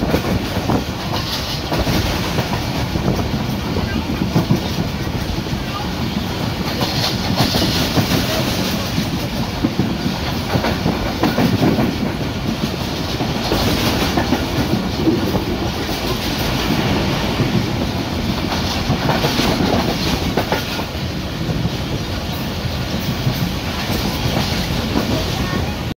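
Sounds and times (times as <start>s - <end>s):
train running rumble inside: 0.0s - 25.9s.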